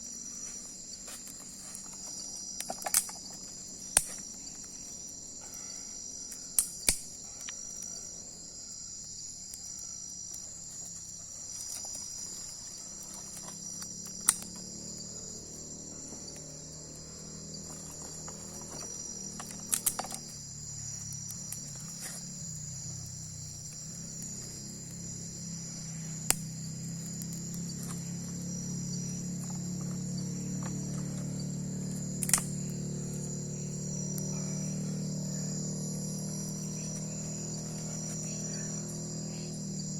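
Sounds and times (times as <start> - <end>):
crickets trilling: 0.0 - 39.9
sharp snaps: 1.2 - 4.7, 6.3 - 8.0, 13.0 - 14.8, 17.9 - 20.4, 26.2 - 28.0, 31.9 - 33.2.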